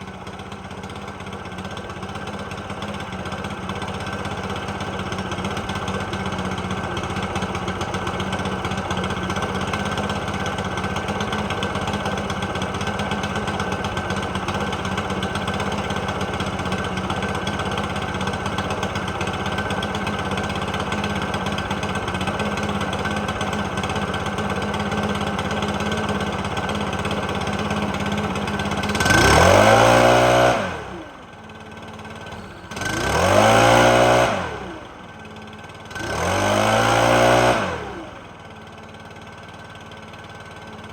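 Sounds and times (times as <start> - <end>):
blower engine idling and revving: 0.0 - 40.9.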